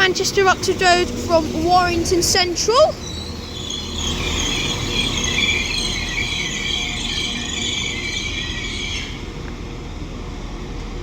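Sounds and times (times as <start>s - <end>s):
train low rumble: 0.0s - 11.0s
train brakes squealing: 1.2s - 9.5s.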